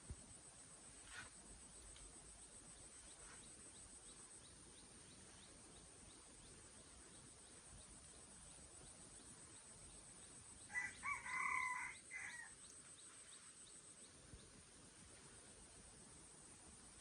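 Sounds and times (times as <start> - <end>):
rooster crowing: 10.7 - 12.6.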